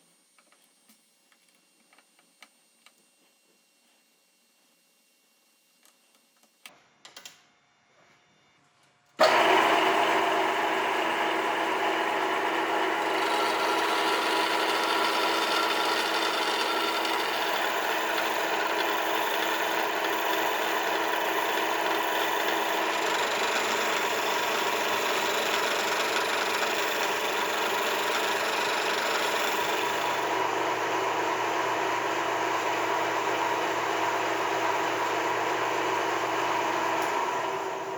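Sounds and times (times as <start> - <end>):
power tool motor hum: 9.2 - 37.9.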